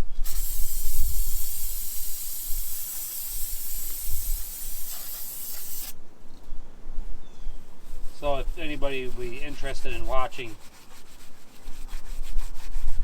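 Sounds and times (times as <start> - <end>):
spraying hiss: 0.0 - 6.0.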